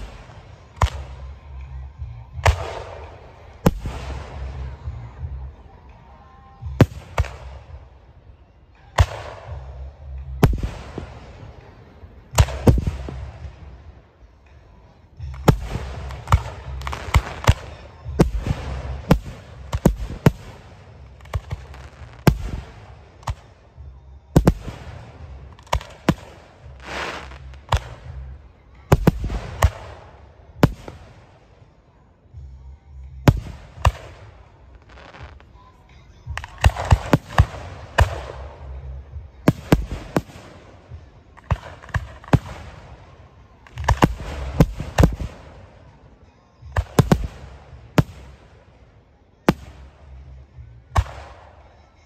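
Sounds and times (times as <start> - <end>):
hissing crackle: 24.4 - 28.3.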